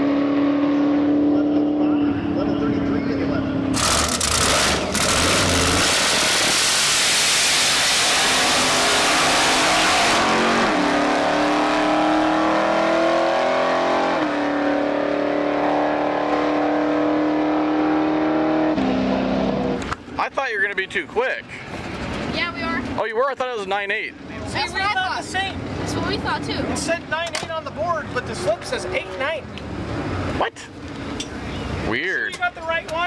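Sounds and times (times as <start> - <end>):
drag race car accelerating: 0.0 - 19.9.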